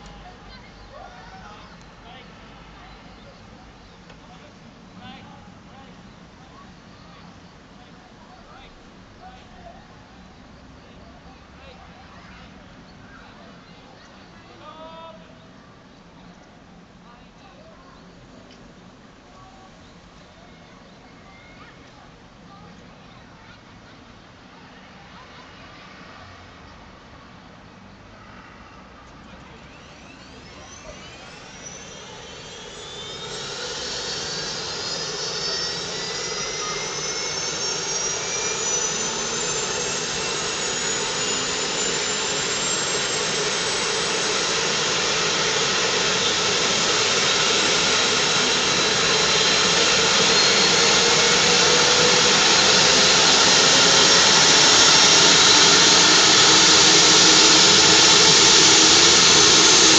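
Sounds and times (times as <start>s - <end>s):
helicopter turbine whine: 29.3s - 59.9s.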